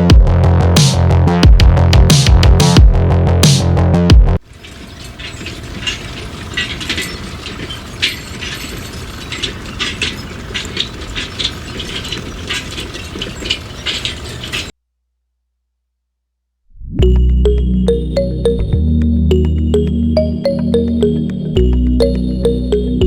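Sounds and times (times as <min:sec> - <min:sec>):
geared mechanism humming and clicking: 0:04.4 - 0:14.7.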